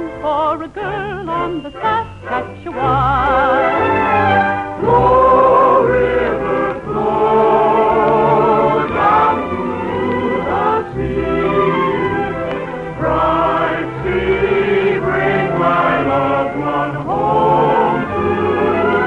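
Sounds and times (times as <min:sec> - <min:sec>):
person singing: 0:00.0 - 0:03.8
choir singing: 0:00.8 - 0:19.0.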